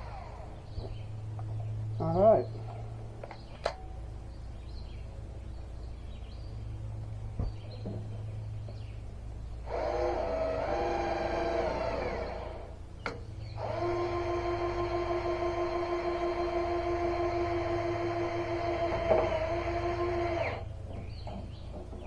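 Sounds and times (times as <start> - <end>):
cordless drill motor whining: 0.0 - 0.6, 9.6 - 12.8, 13.6 - 20.7
low hum: 0.0 - 22.0.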